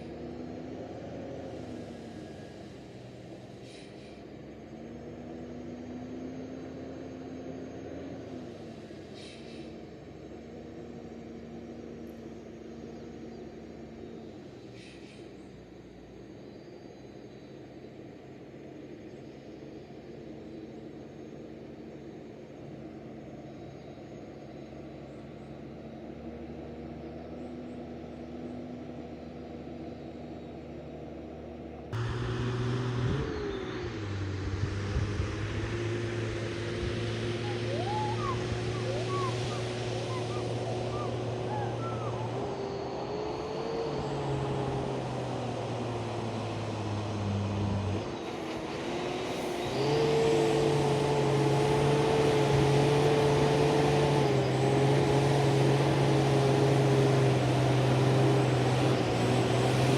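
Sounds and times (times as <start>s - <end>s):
truck engine labouring uphill: 0.0s - 59.9s.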